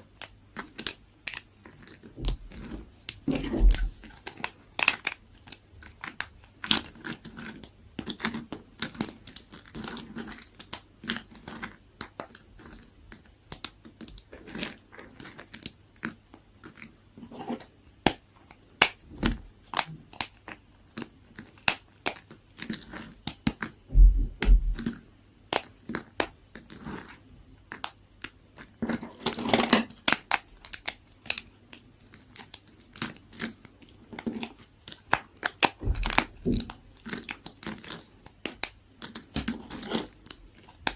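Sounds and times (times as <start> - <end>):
blade crunching through dry soap: 0.0 - 23.9, 24.5 - 40.9
heavier knocks: 23.9 - 24.8.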